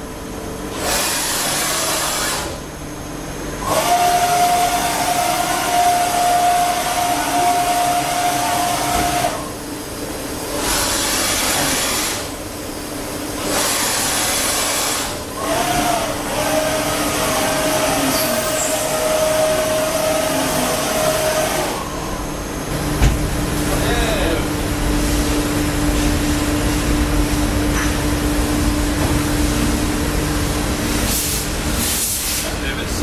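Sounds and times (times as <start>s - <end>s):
high machine whine: 0.0s - 33.0s
lathe machine hissing: 13.4s - 22.7s.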